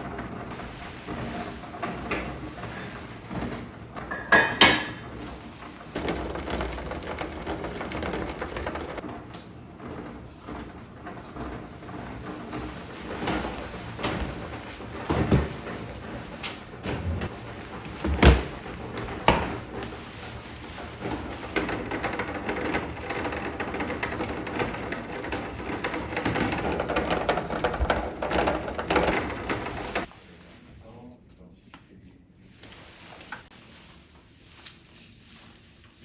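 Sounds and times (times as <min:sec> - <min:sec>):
dense rustling or scraping: 0:00.0 - 0:30.8, 0:32.4 - 0:36.0
knocks and clunks: 0:01.8 - 0:19.8.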